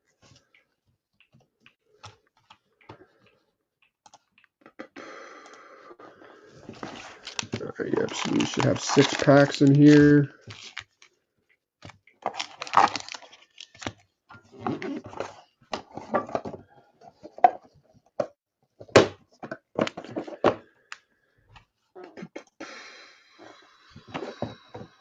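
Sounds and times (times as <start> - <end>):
packs crackling and rustling: 6.7 - 10.8, 12.3 - 13.9.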